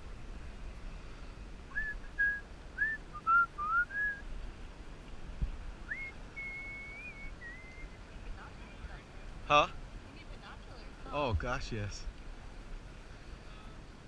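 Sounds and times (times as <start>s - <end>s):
person whistling a tune: 1.7s - 4.2s, 5.9s - 7.9s.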